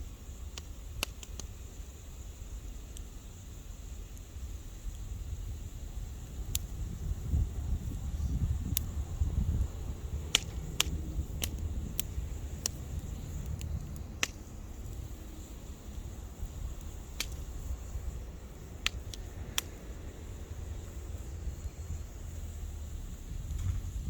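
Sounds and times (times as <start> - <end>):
wood fire crackling: 0.0 - 24.0
low rumble: 6.3 - 24.0.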